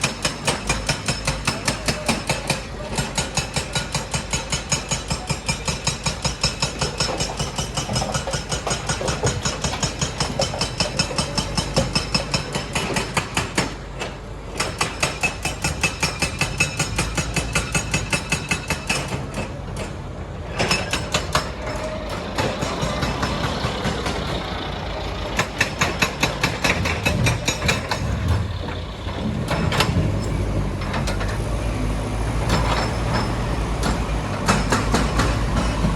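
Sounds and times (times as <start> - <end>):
machinery pounding stone: 0.0 - 13.8, 20.6 - 24.6, 25.2 - 31.2, 32.4 - 35.9
low engine rumble: 21.5 - 35.9.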